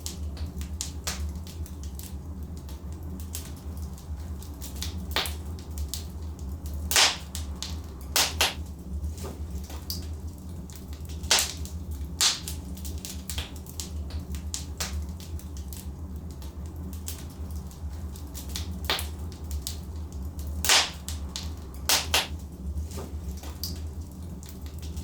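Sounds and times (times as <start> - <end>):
logs crackling in fireplace: 0.0 - 25.0
low fire rumble: 0.0 - 25.0
loud fire pops: 4.8 - 6.1, 6.8 - 10.0, 10.8 - 15.8, 18.4 - 23.8.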